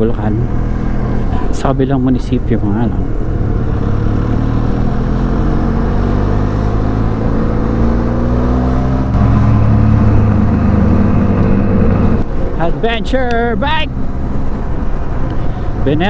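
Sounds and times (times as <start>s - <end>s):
motorcycle engine climbing: 0.0s - 15.9s.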